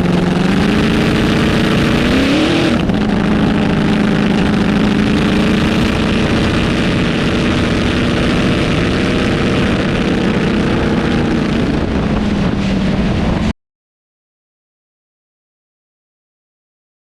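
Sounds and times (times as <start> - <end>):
dragster engine running hard: 0.0 - 13.5
wind rush: 0.0 - 13.5.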